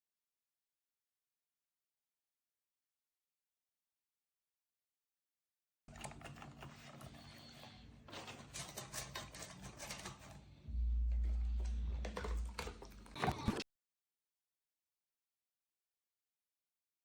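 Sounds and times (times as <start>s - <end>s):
loud low rumble: 10.6s - 13.6s.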